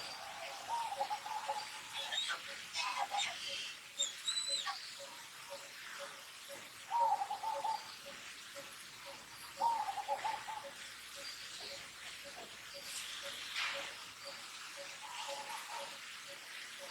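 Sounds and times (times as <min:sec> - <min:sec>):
faint regular ticking: 0:04.5 - 0:16.9.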